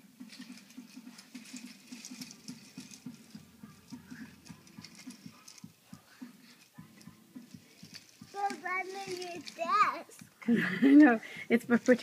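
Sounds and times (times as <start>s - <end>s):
toy train clattering on track: 0.2s - 5.6s, 6.6s - 10.0s.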